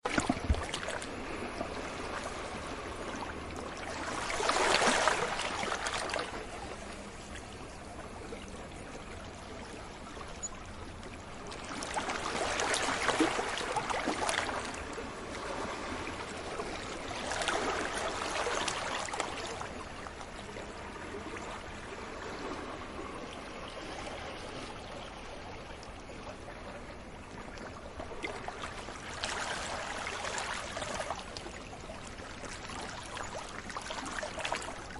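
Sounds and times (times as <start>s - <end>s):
sea waves breaking on beach: 0.0s - 6.8s, 11.4s - 20.1s, 28.2s - 31.4s.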